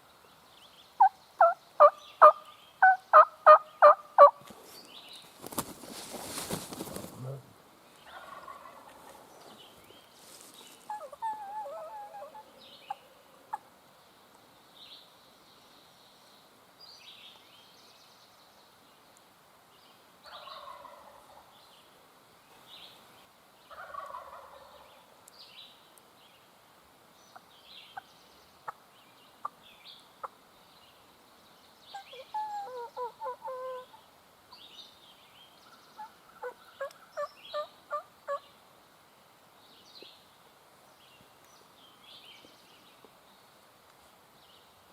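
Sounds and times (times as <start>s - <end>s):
songbirds chirping: 0.0s - 44.9s
turkey gobbling: 1.0s - 4.4s, 8.1s - 9.0s, 10.9s - 12.5s, 20.3s - 21.4s, 23.7s - 24.8s, 36.0s - 38.4s
turkey yelping: 10.9s - 12.5s.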